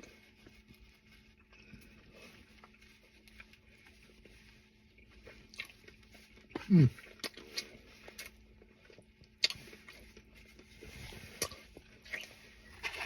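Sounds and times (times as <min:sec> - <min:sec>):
person chewing: 0:04.9 - 0:13.0.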